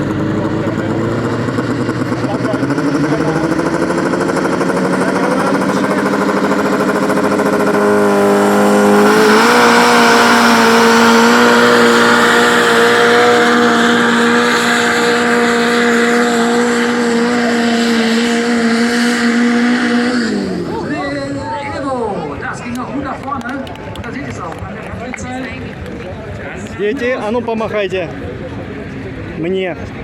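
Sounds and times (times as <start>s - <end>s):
tractor engine revving: 0.0s - 23.0s.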